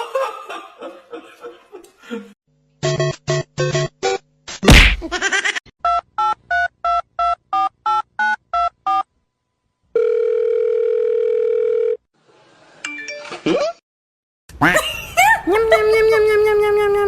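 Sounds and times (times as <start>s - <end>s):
steady telephone tone: 10.0s - 12.0s.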